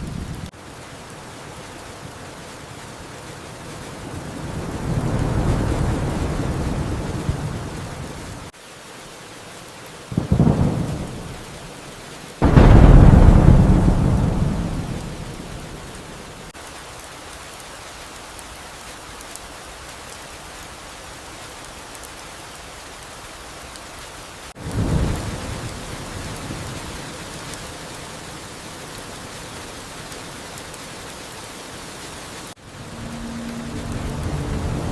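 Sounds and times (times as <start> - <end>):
thunder rumble: 0.0 - 8.5, 10.2 - 11.6, 12.4 - 16.5, 24.6 - 29.9, 32.6 - 34.9
thunderclaps: 0.0 - 8.5, 10.2 - 11.6, 12.4 - 16.5, 24.6 - 28.9, 32.7 - 34.9
steady rain: 0.0 - 34.9.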